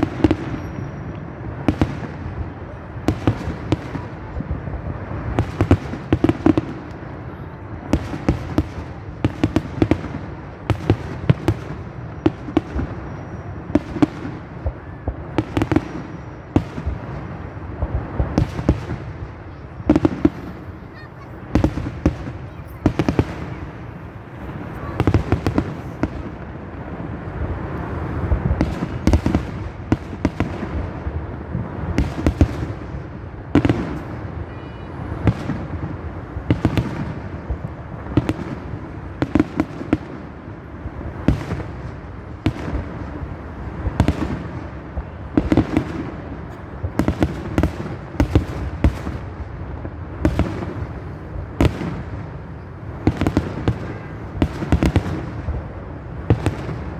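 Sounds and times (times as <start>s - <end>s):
fireworks bursting in sharp bangs: 0.0s - 56.9s.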